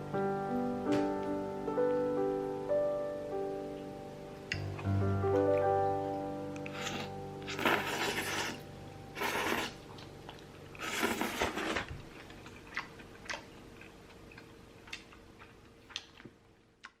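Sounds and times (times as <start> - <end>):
background music: 0.0 - 9.4.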